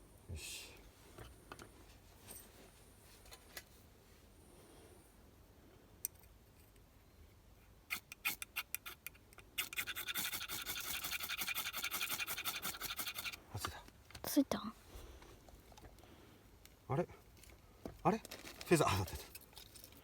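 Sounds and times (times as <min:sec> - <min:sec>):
striker scraping ferro rod: 0:07.9 - 0:13.4.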